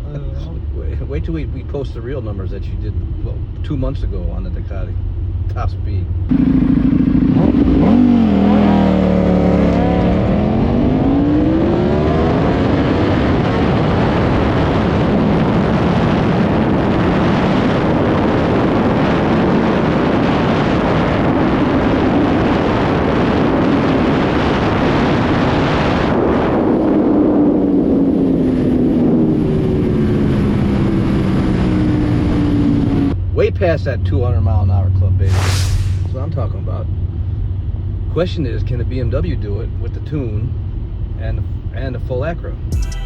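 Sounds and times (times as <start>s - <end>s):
motorcycle engine revving: 6.3s - 15.9s
wind rush: 35.2s - 36.3s.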